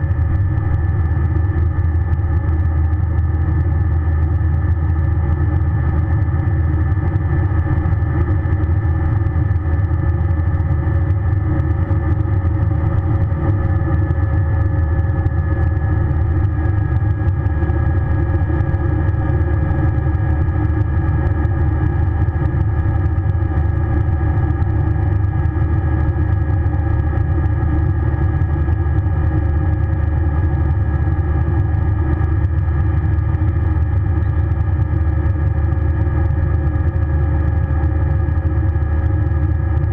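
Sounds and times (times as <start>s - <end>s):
aircraft cabin rumble: 33.2s - 34.8s.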